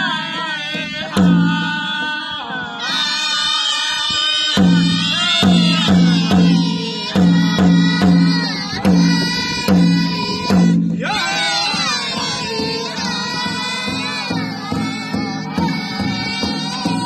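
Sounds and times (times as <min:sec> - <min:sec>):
high-pitched group singing: 0:00.0 - 0:17.0
large hand drum beats: 0:00.0 - 0:17.0.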